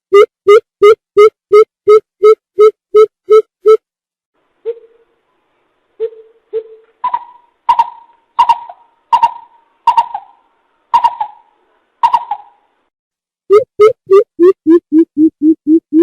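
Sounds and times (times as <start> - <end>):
bird hooting calls: 6.0 - 12.6.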